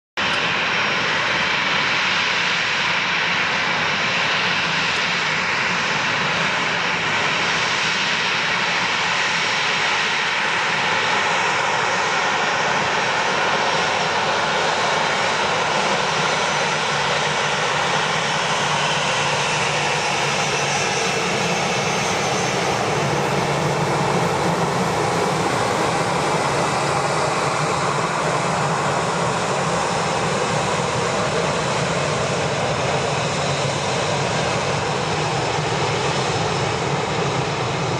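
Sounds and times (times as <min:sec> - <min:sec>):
jet engines running: 0:00.2 - 0:37.9.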